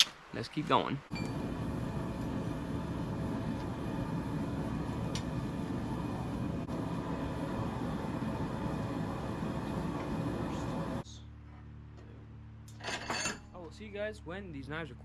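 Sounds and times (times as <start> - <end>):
forge roaring: 1.2 - 11.0.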